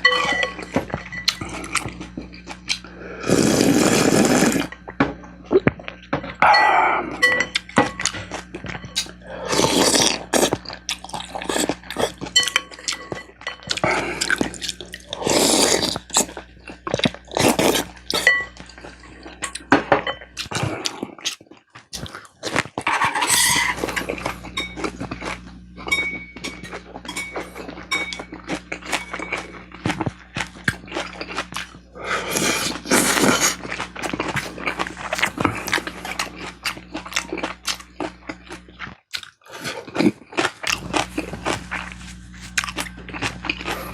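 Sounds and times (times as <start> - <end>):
utensils clinking on dishes: 0.0 - 2.5, 6.1 - 16.3, 17.4 - 20.6, 22.5 - 31.5
person chewing and slurping: 0.0 - 19.7, 20.3 - 43.9.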